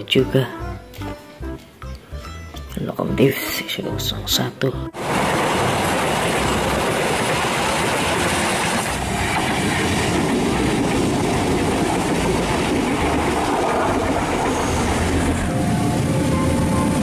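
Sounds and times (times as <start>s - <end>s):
steel train wheels rumbling on rails: 5.0s - 17.0s.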